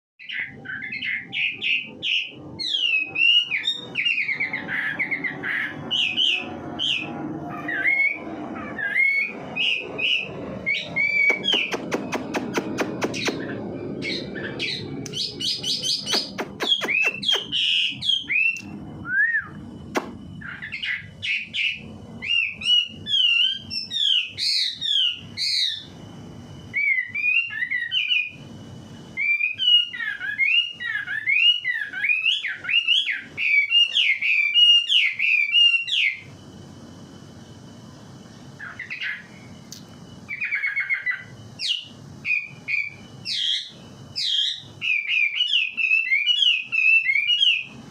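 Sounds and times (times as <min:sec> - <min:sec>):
thin held bird whistles: 0:00.2 - 0:25.9, 0:26.7 - 0:28.5, 0:29.1 - 0:36.3, 0:38.6 - 0:47.8
songbird chirping and whistling: 0:00.2 - 0:37.6, 0:38.4 - 0:47.9
bird clicking notes: 0:11.3 - 0:13.4.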